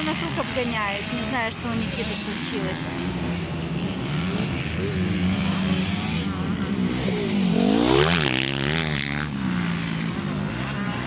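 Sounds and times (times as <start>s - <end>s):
drone of other motorcycles: 0.0s - 11.0s
motocross motorcycle revving: 0.0s - 11.0s.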